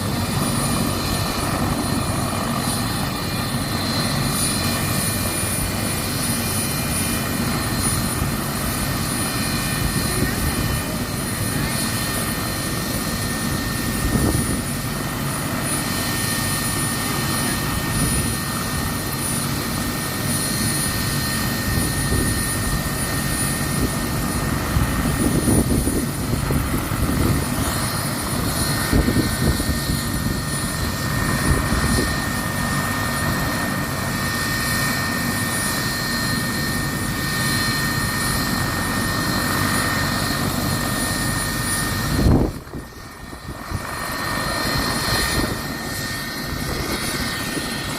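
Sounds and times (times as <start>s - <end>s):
helicopter rotor and turbine: 0.0s - 47.9s
wind buffeting microphone: 13.2s - 15.0s, 21.2s - 33.8s, 41.5s - 47.9s.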